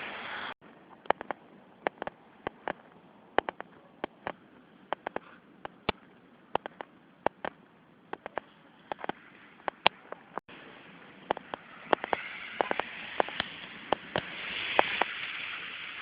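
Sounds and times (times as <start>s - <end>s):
faint hiss: 8.4s - 16.0s.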